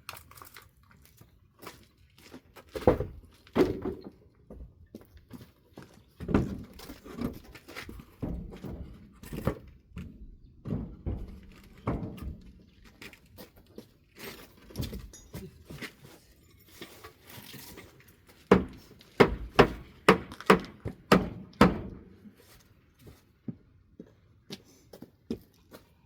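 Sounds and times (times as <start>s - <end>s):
wooden boards knocking and clattering: 2.8s - 4.2s, 6.2s - 12.6s, 18.5s - 22.1s.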